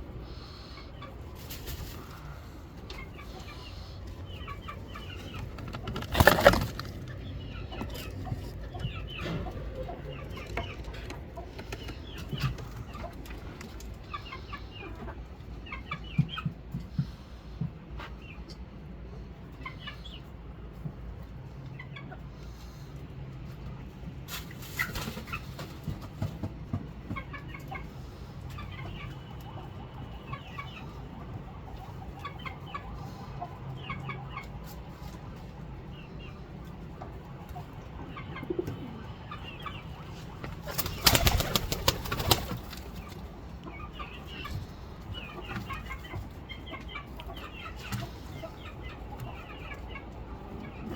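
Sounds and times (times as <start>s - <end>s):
wings flapping: 5.6s - 7.2s, 40.4s - 43.2s
pigeons cooing: 38.2s - 43.2s.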